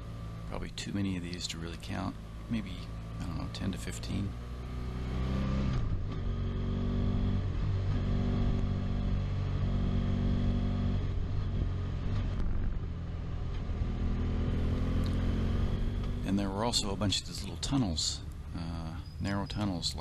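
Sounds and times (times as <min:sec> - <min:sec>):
motorcycle engine droning: 0:00.0 - 0:20.0.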